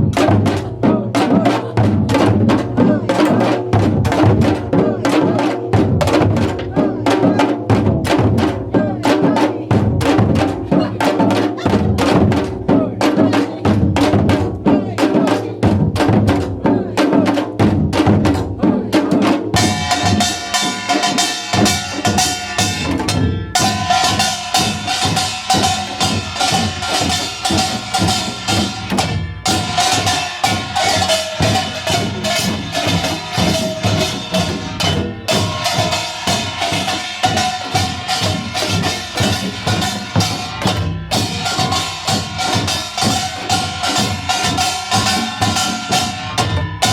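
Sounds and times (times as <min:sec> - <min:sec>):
hourglass drums fast rhythm: 0:00.0 - 0:46.9
small gongs clanging: 0:19.6 - 0:46.9.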